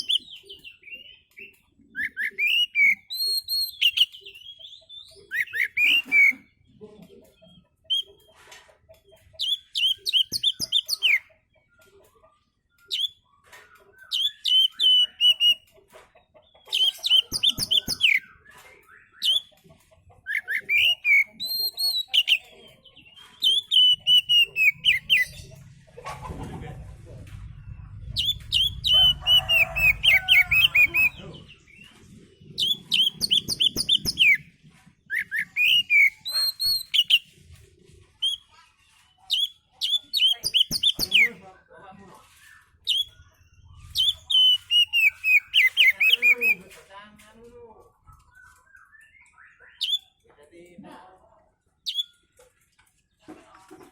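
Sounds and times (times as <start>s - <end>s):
bird singing whistled notes: 0.0s - 6.3s, 23.3s - 25.4s, 28.2s - 31.2s, 32.6s - 34.4s, 35.1s - 37.2s, 42.4s - 46.6s, 48.2s - 50.2s, 51.9s - 52.1s.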